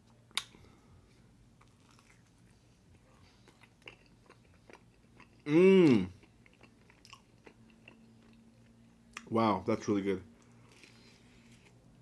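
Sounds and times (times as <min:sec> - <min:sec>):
chewing food close-up: 0:01.6 - 0:09.3.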